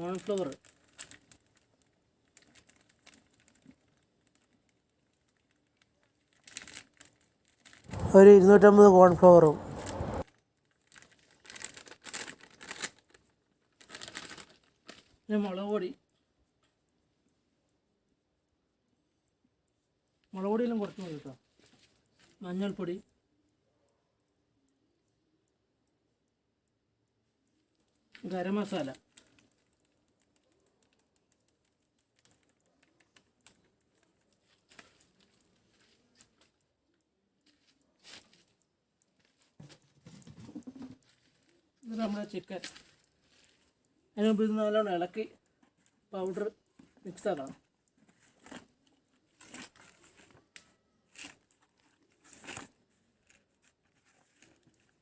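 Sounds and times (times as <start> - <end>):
soft rustle: 20.9 - 22.4, 29.1 - 36.7, 37.4 - 44.1, 47.6 - 55.0.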